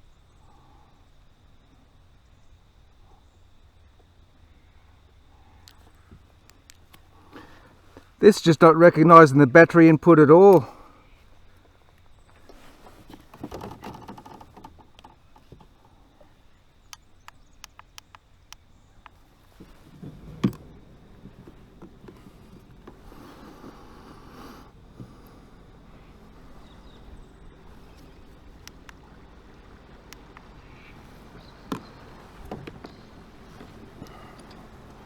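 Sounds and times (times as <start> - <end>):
jet ski rumbling: 0.0 - 16.6, 18.6 - 35.0
water noise: 19.1 - 35.0.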